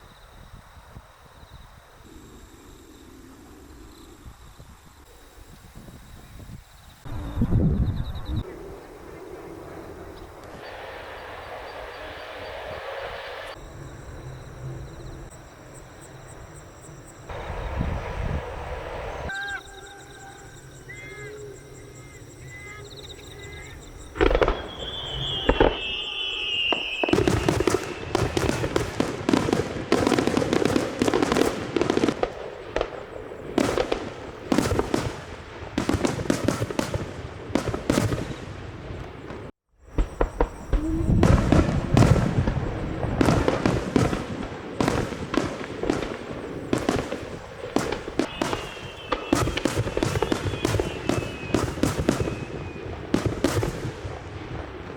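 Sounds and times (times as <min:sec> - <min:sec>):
firework bang with falling whistle: 0:23.4 - 0:32.9, 0:33.6 - 0:38.6, 0:39.3 - 0:54.9
firework shell bursts and crackling: 0:24.2 - 0:54.9.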